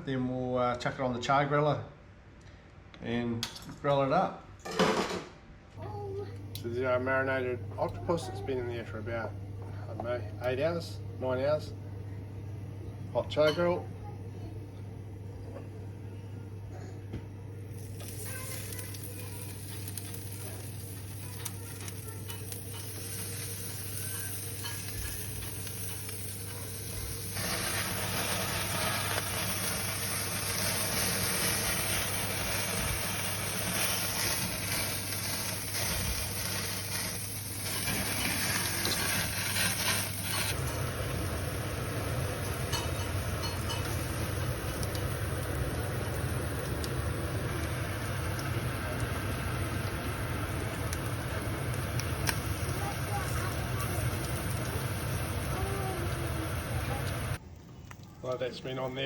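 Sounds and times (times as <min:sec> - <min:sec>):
octopus sizzling on a grill: 0:17.6 - 0:57.4
low hum: 0:40.1 - 0:57.4.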